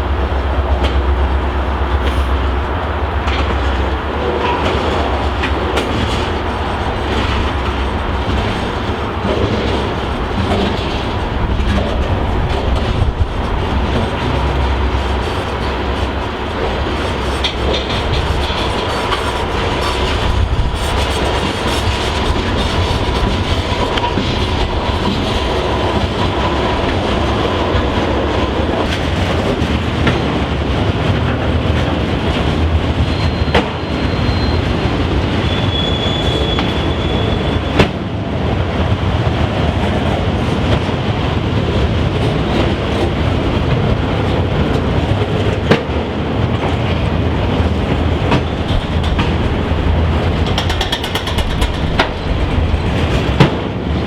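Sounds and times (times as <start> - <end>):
train wheels on rails: 0.0 - 54.0
wheels clicking over rail joints: 1.9 - 54.0
high-pitched wheel squeals: 33.0 - 34.8, 35.4 - 37.8.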